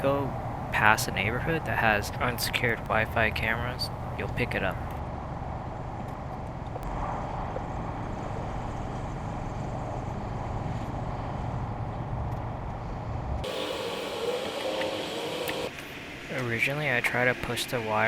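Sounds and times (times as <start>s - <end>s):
vehicle engine rumbling: 0.0s - 15.7s
outdoor background noise: 0.0s - 18.0s.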